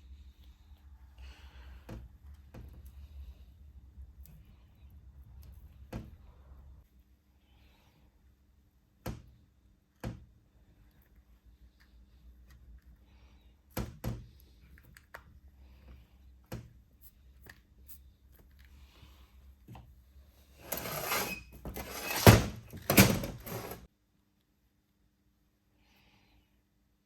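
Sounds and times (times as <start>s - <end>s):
rubbing and clatter of parts: 20.6s - 23.9s.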